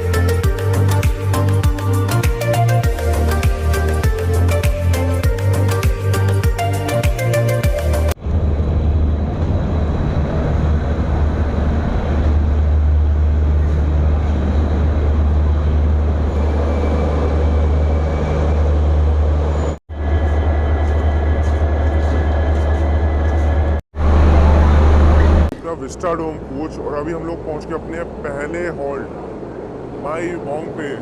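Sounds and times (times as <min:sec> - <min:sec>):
train rumbling on track: 0:08.2 - 0:31.0.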